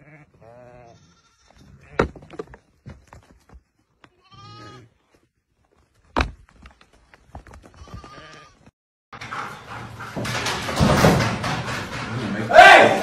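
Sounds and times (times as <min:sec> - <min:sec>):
sheep bleating: 0:00.0 - 0:02.0, 0:04.1 - 0:04.9, 0:07.8 - 0:08.7.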